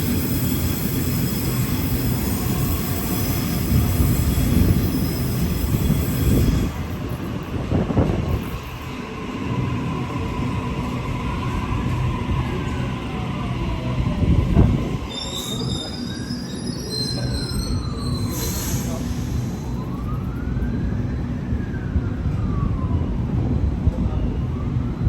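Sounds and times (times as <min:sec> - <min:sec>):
electric train rumbling: 0:00.0 - 0:25.0
metallic wheel squeal: 0:00.2 - 0:06.9, 0:15.1 - 0:18.9.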